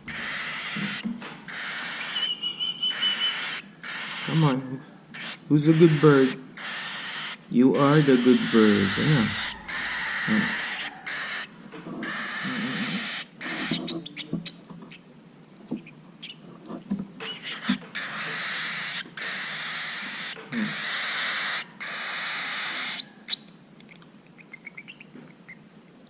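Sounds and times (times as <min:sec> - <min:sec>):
bird raspy hissing calls: 0:00.1 - 0:14.3, 0:17.4 - 0:23.2
bird chirps and clicks: 0:00.8 - 0:04.3, 0:23.3 - 0:25.6.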